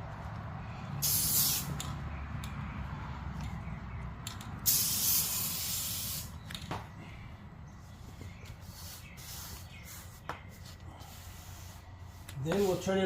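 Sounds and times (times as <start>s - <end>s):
aerosol spray hissing: 1.0s - 1.7s, 4.7s - 6.3s.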